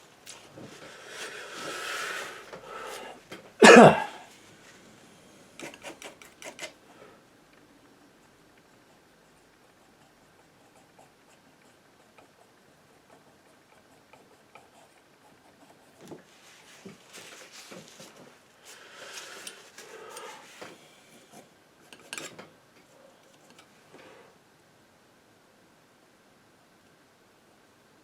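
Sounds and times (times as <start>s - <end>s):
painting knife scraping canvas: 5.6s - 6.8s, 21.2s - 22.4s.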